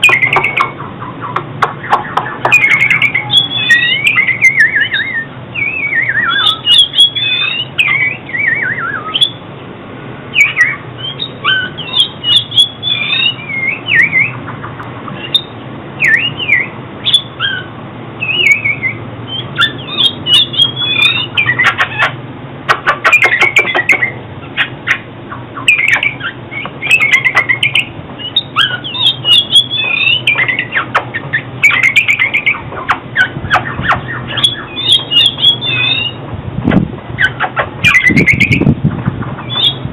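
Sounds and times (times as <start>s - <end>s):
sharp clicking bird notes: 0.0s - 4.3s, 19.7s - 36.1s
bird singing whistled phrases: 0.0s - 9.4s, 10.3s - 14.4s, 15.2s - 22.1s, 23.1s - 25.0s, 25.6s - 32.6s, 33.2s - 36.2s, 37.2s - 38.7s, 39.4s - 39.9s.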